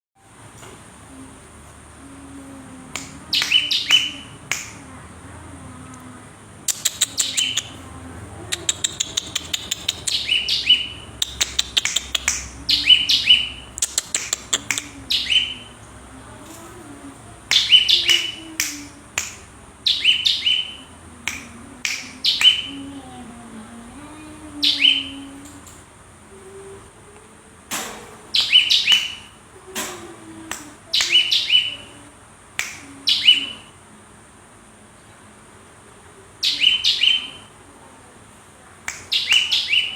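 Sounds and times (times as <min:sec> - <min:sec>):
bird rapid clicking notes: 0:02.9 - 0:04.9, 0:06.7 - 0:07.8, 0:08.5 - 0:15.5, 0:17.5 - 0:20.6
bird high chirps: 0:03.0 - 0:04.8, 0:06.7 - 0:15.8, 0:17.5 - 0:22.8, 0:24.6 - 0:25.3, 0:28.3 - 0:29.4, 0:30.9 - 0:31.9, 0:32.8 - 0:33.7, 0:36.4 - 0:37.5, 0:38.9 - 0:39.9.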